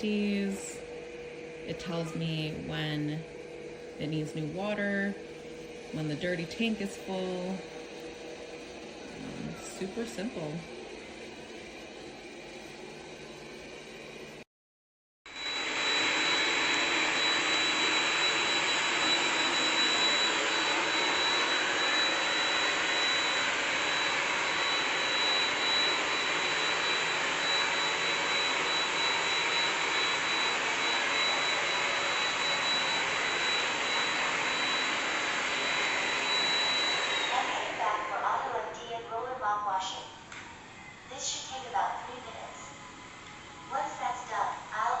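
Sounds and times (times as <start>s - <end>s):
robot vacuum suction whine: 15.3s - 39.0s.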